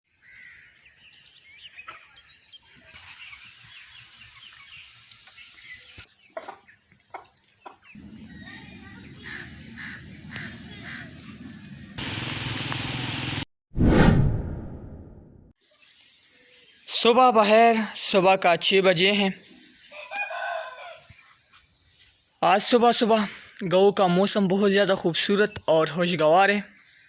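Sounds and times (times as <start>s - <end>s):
birds chirping: 1.4s - 13.4s.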